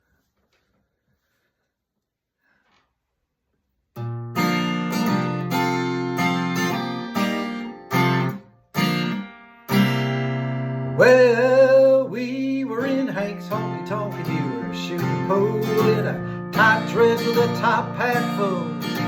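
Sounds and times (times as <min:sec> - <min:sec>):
acoustic guitar strumming: 0:04.0 - 0:19.0
person singing: 0:11.0 - 0:19.0.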